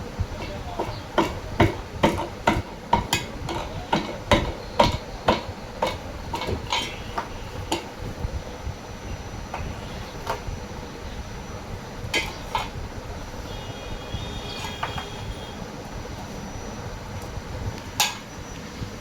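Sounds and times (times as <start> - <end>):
tools knocking on metal parts: 0.2 - 8.1, 9.5 - 10.5, 12.1 - 12.8, 14.6 - 15.2.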